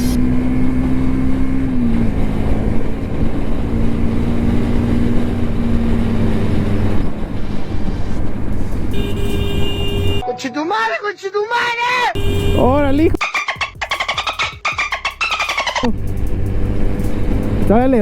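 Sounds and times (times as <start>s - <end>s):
heavy low rumble: 12.2s - 18.0s
vehicle engine running: 12.2s - 18.0s.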